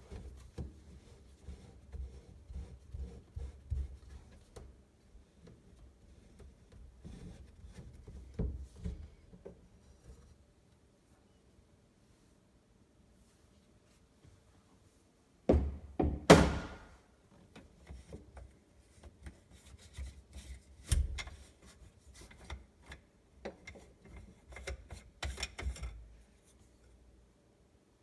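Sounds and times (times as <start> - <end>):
knocks and thuds on sink: 15.5 - 16.8
small clicks and rubbing: 17.3 - 27.0.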